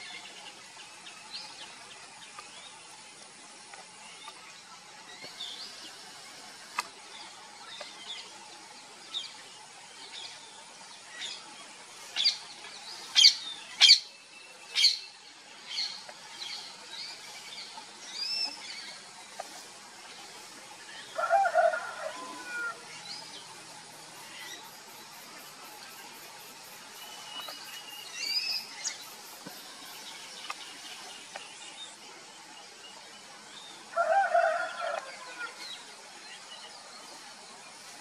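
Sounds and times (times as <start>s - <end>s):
birds chirping: 22.2s - 38.0s.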